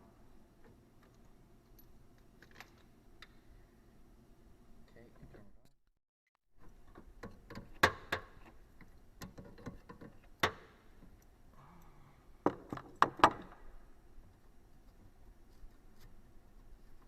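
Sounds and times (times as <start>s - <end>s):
tools clicking and knocking: 6.6s - 11.3s.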